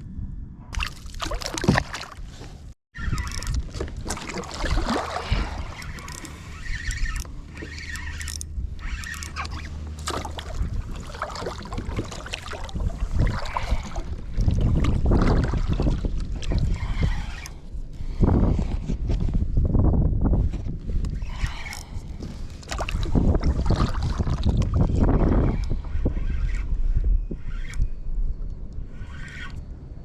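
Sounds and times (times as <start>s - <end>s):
wind buffeting microphone: 0.0s - 30.0s
water splashing against hull: 0.8s - 17.7s, 21.3s - 26.1s.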